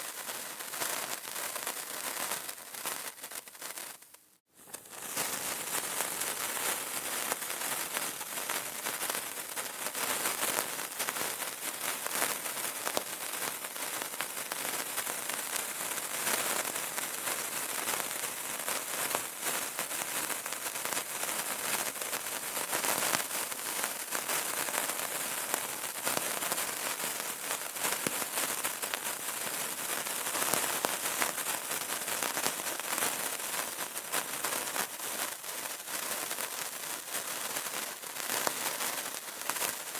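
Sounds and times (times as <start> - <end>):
candle crackling: 0.0 - 10.0, 22.6 - 30.6, 31.4 - 39.9.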